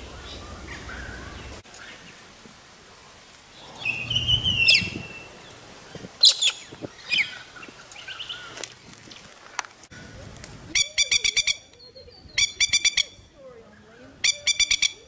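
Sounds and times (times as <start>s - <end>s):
birds calling with downward sweeps: 3.4s - 15.0s.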